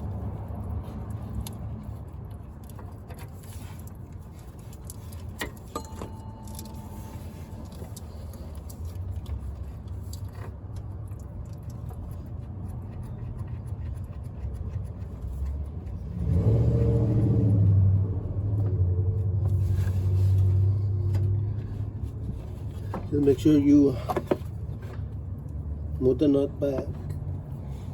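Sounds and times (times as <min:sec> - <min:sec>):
low engine rumble: 0:00.0 - 0:27.9.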